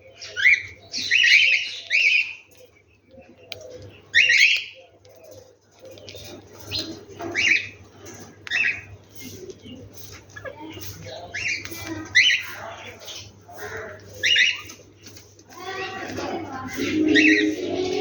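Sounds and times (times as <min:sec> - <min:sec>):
faint low bird calls: 0:00.0 - 0:18.0
harsh bird chirps: 0:16.7 - 0:18.0.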